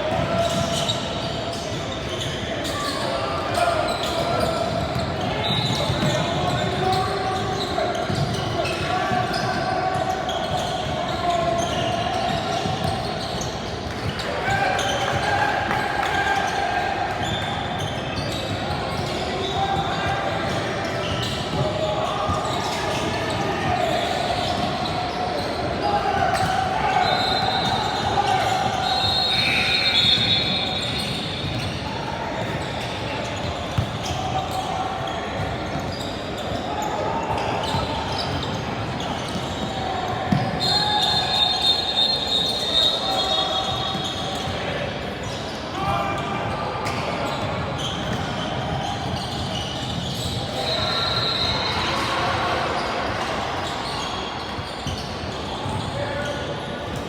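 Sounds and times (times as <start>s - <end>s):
voices of players and spectators: 0.0s - 57.0s
basketball bouncing on court: 4.7s - 6.9s, 33.4s - 34.2s, 40.3s - 40.6s.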